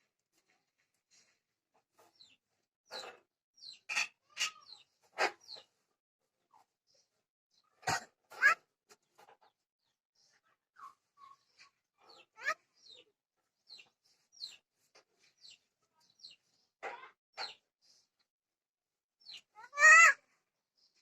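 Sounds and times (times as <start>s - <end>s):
harsh bird calls: 19.3s - 20.3s.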